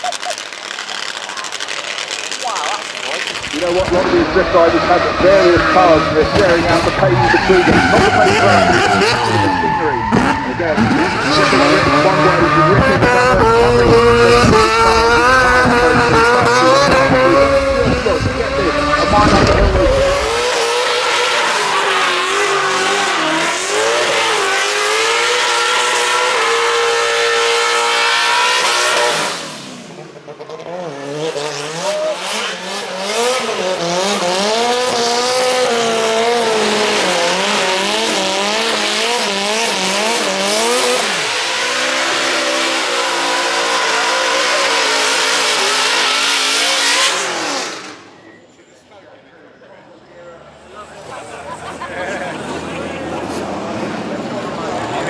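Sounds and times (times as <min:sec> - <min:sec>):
car engine revving: 0:00.0 - 0:48.3
tyres squealing: 0:06.7 - 0:14.0.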